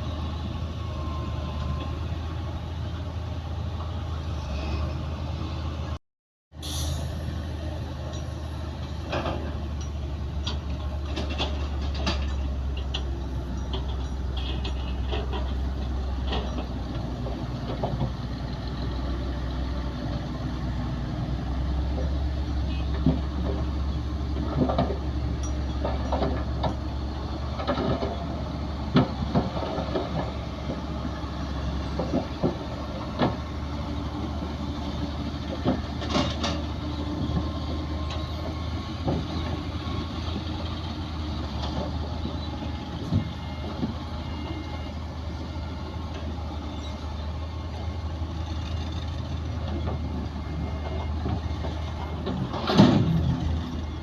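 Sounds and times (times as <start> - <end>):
heavy diesel machinery running: 6.6 - 54.0
sharp metal clanks and knocks: 9.1 - 16.8.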